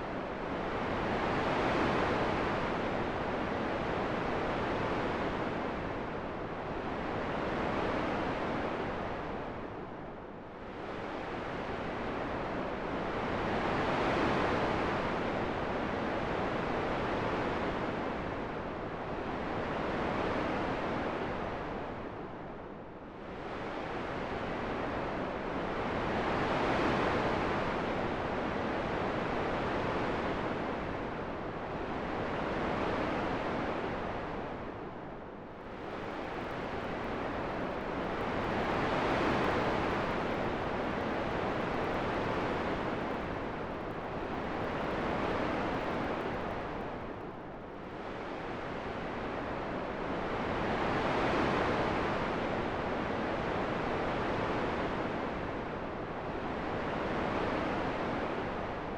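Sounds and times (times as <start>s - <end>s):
rushing wind: 28.9s - 52.6s.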